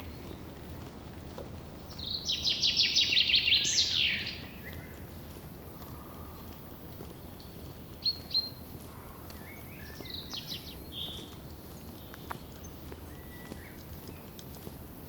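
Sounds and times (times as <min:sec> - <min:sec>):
songbirds calling: 0:01.9 - 0:14.4.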